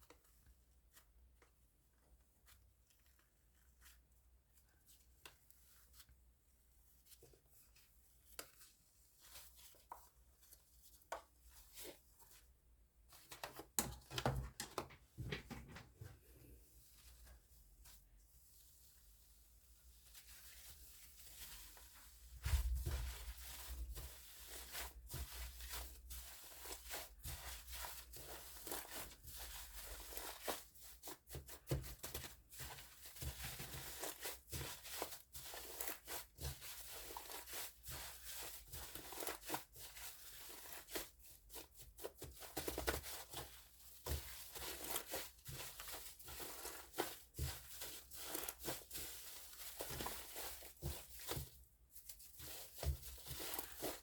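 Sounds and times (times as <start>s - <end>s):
foam slime crackling and squishing: 17.0s - 54.0s.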